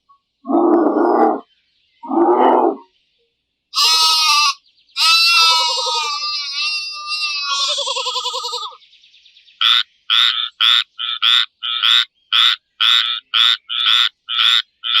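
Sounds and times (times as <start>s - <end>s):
frog croaking: 0.4s - 1.4s, 2.0s - 2.8s, 9.6s - 15.0s.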